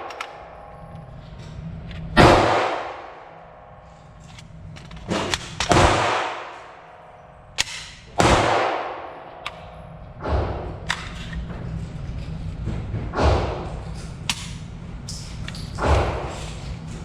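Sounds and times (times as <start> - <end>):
pistol shots echoing: 2.2 - 3.6, 5.1 - 10.7.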